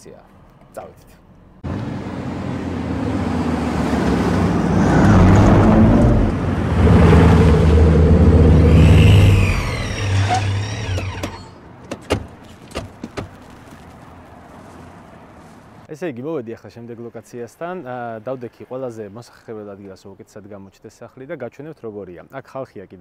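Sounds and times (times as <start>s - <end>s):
sports car engines revving: 1.6s - 11.6s
high falling squeals: 4.8s - 11.6s.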